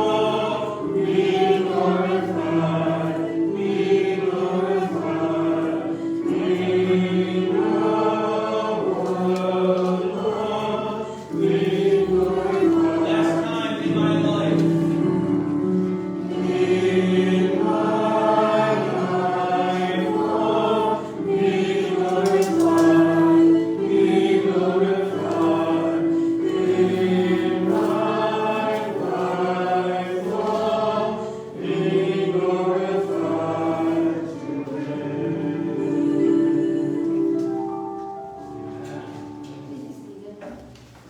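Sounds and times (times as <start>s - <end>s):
congregation singing a hymn: 0.0s - 40.8s.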